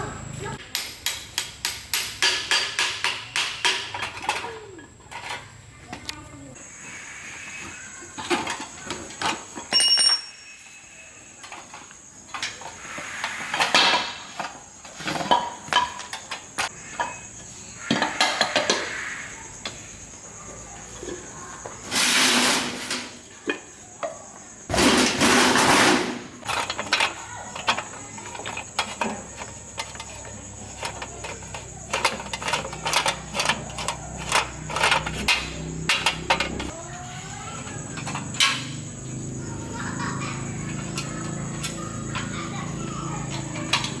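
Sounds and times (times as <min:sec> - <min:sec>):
hand tools clinking on metal: 0:08.3 - 0:10.8, 0:24.7 - 0:36.8.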